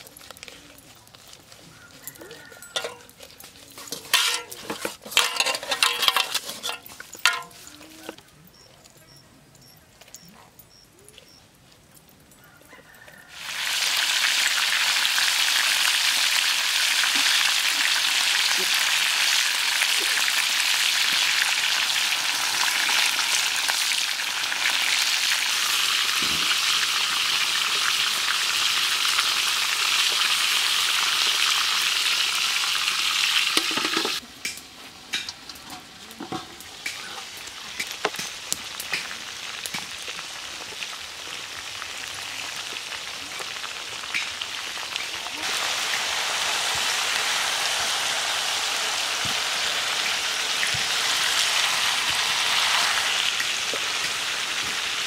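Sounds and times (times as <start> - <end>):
chicken sizzling in a wok: 1.8 - 3.2, 3.9 - 7.7, 12.7 - 55.0
crackle and pops: 36.6 - 45.4.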